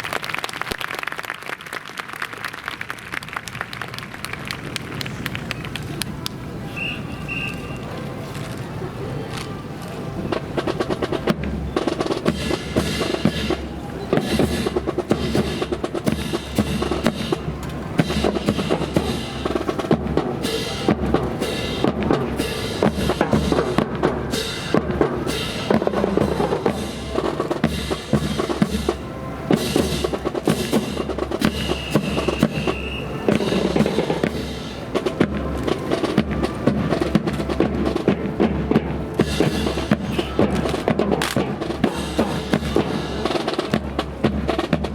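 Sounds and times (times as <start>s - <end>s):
drums playing a rhythm: 10.2s - 44.9s.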